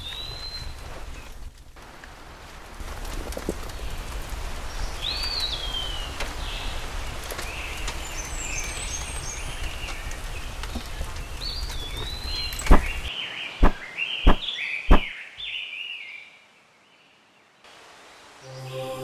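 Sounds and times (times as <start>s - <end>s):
bird chirps: 11.4s - 16.4s
bird whistled call: 12.6s - 16.2s
sharp thump: 13.6s - 15.1s.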